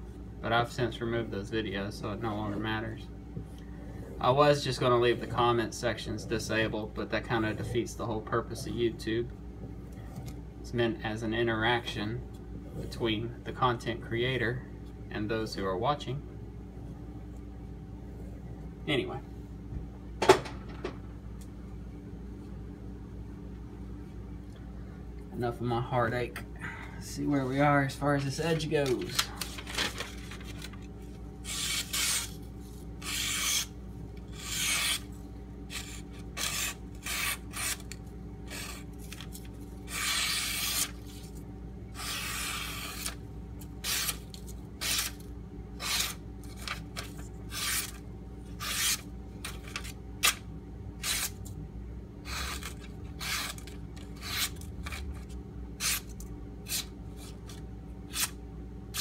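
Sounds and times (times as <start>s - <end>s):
knife slicing paper: 31.4s - 32.4s, 33.0s - 33.7s, 34.3s - 35.1s, 35.7s - 41.4s, 42.0s - 43.2s, 43.8s - 45.2s, 45.8s - 48.0s, 48.6s - 50.4s, 52.3s - 55.1s, 58.1s - 58.4s.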